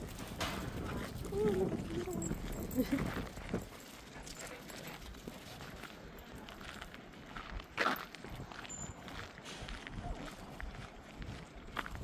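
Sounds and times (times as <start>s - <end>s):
wind rumbling on microphone: 0.0s - 3.8s
footsteps on ground: 0.0s - 12.0s.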